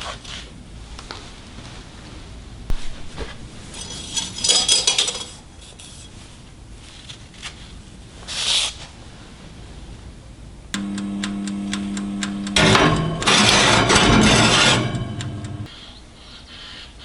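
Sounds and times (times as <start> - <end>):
steel clinking against metal: 3.7 - 5.8, 12.6 - 15.7
metallic ringing: 12.0 - 15.7.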